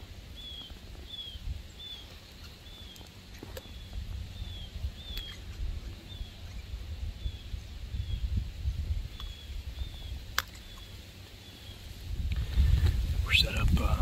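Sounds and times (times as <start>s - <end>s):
bird chirping: 0.3s - 8.4s, 9.0s - 11.9s.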